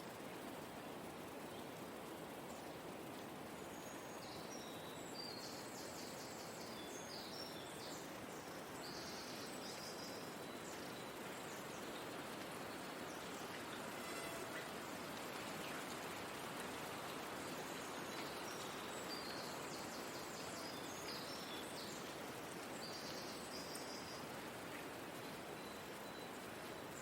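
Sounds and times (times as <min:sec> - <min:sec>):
soft hiss of air or water: 0:00.0 - 0:27.0.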